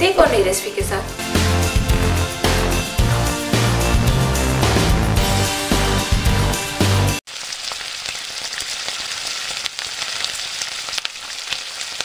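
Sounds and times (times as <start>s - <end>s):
background music with a beat: 0.2s - 7.2s
food sizzling and crackling: 7.2s - 12.0s.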